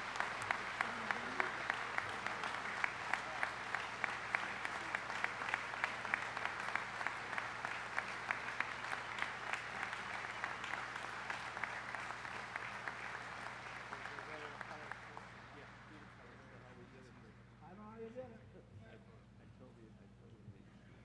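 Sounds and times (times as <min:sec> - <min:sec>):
nearby sharp claps: 0:00.0 - 0:16.4
audience applauding: 0:00.0 - 0:16.8.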